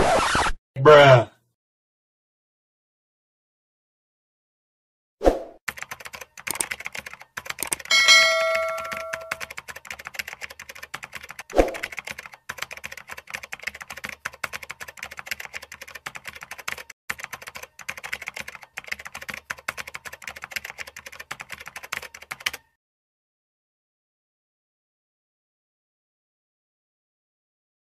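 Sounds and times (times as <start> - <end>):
rapid keyboard key clicks: 5.7 - 7.9, 8.6 - 22.7
bell-like ding: 7.9 - 9.5.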